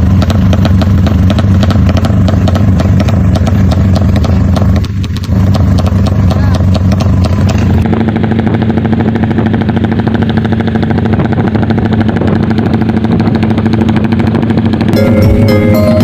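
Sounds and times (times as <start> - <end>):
motorcycle engine running: 0.0 - 16.0
music: 15.0 - 16.0.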